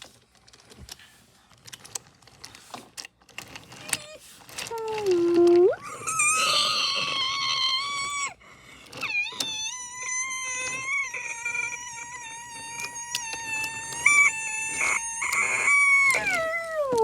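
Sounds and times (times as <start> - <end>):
scattered clicks: 10.4 - 17.0.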